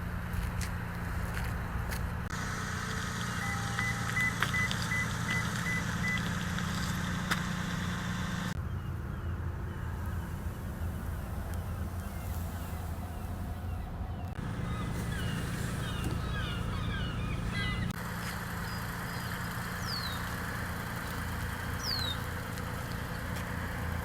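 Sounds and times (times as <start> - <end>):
steady low hum: 0.0 - 24.0
car warning chime beeping: 2.4 - 6.6.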